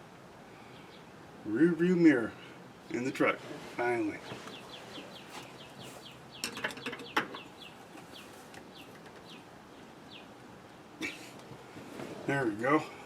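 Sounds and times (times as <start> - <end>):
bird chirping: 4.1 - 11.2.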